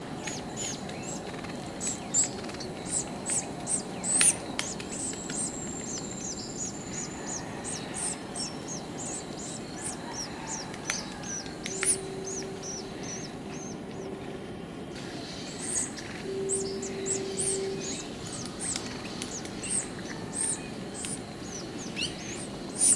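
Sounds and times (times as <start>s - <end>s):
birds chirping: 0.0s - 14.1s, 15.0s - 22.9s
low background hiss: 0.0s - 14.1s, 14.7s - 22.9s
long thin bird whistle: 15.1s - 22.9s.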